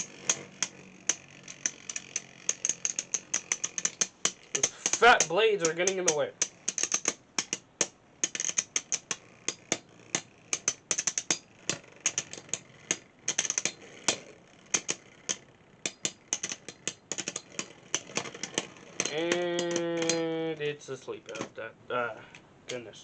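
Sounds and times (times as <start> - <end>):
spinning tops clashing: 0.0 - 20.6
man talking: 4.6 - 6.4, 19.1 - 23.0.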